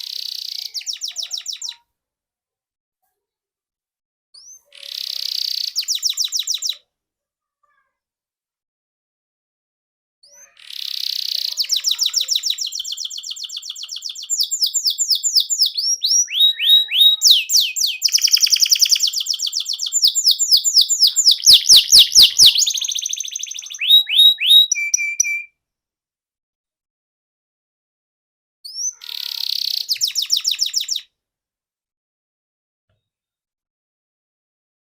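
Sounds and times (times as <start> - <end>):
canary singing trills: 0.0 - 1.8, 4.4 - 6.8, 10.3 - 25.5, 28.7 - 31.1.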